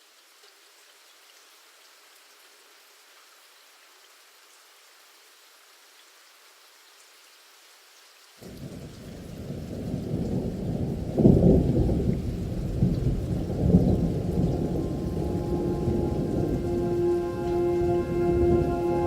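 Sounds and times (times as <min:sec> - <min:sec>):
rain: 0:00.0 - 0:19.0
thunder rumbling: 0:08.4 - 0:19.0
held music note: 0:14.6 - 0:19.0.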